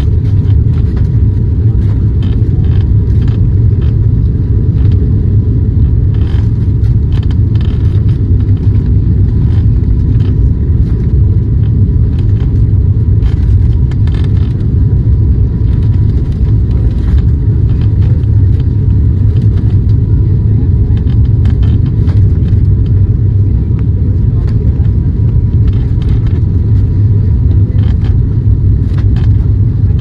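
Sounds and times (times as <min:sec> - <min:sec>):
turboprop engine drone: 0:00.0 - 0:30.0.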